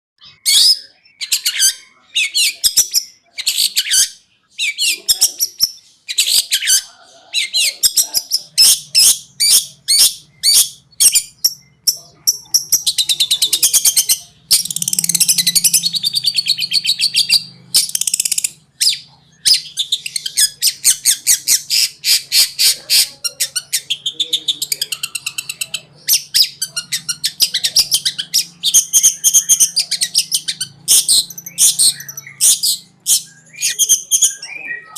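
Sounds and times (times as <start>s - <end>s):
bird singing: 0.2s - 34.9s
harsh rattling trills: 8.3s - 34.9s.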